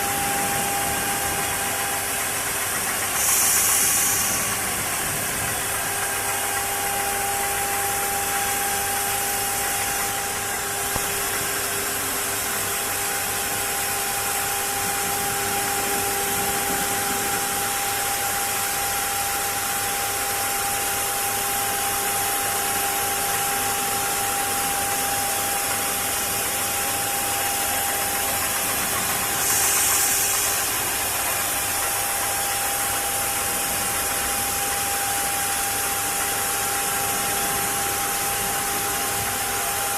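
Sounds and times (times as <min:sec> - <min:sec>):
high-pitched hiss: 0:03.0 - 0:06.6, 0:26.0 - 0:34.8.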